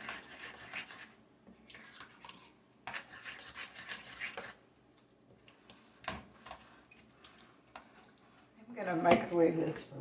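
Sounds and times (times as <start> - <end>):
utensil scraping thick dip: 0.0 - 2.2, 2.8 - 4.6, 5.5 - 8.5.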